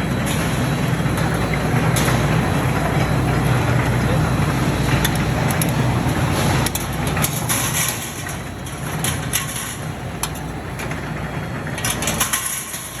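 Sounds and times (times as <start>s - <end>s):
factory machinery hum: 0.0s - 13.0s.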